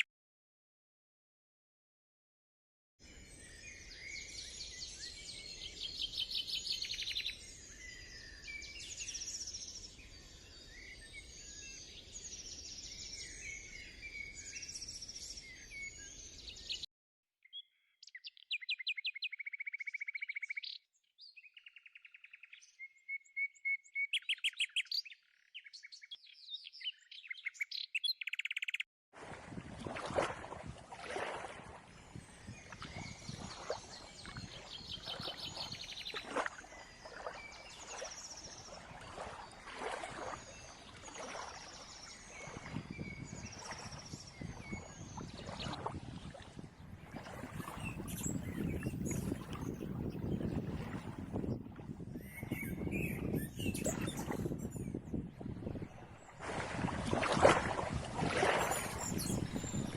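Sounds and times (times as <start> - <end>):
songbirds chirping and singing: 3.1 - 16.9, 17.5 - 28.8, 32.4 - 39.4, 46.8 - 55.8, 58.6 - 59.9.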